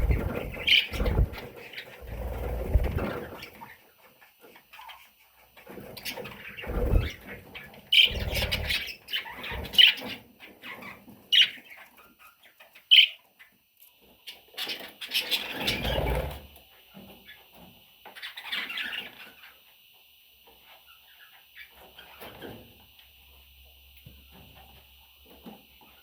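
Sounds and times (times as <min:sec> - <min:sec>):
budgerigar chicks chirping: 0:00.0 - 0:02.4, 0:06.0 - 0:13.6.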